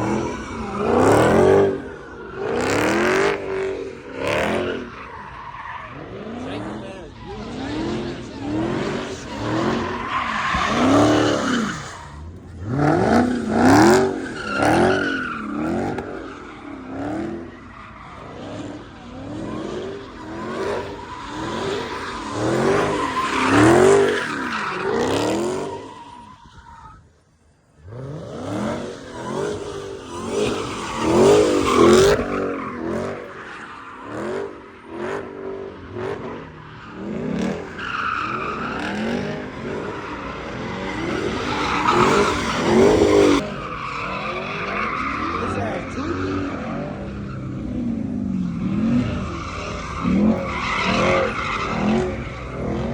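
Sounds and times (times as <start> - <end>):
car engine revving: 0.0 - 26.4, 27.1 - 52.9
tyres squealing on pavement: 0.0 - 52.9.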